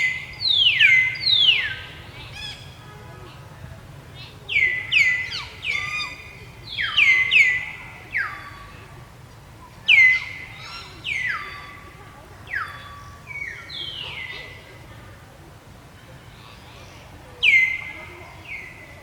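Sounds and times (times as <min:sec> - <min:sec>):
high-pitched macaque calls: 0:04.5 - 0:08.7.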